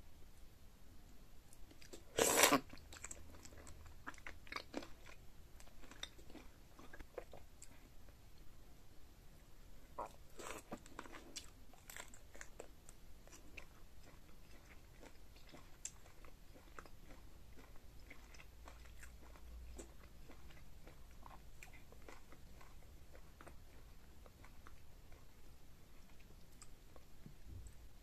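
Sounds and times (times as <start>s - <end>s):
close chewing with wet crunches: 10.0s - 27.1s.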